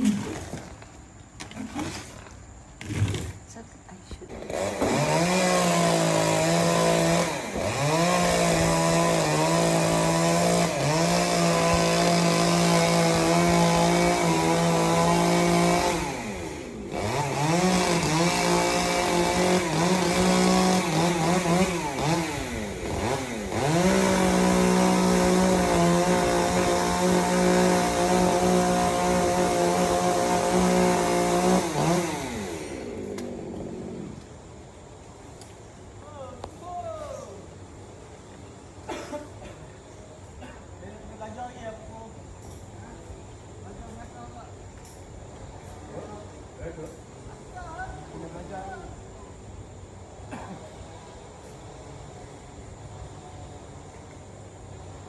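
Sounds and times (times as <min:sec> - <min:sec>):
chainsaw running at high revs: 0:04.3 - 0:34.3.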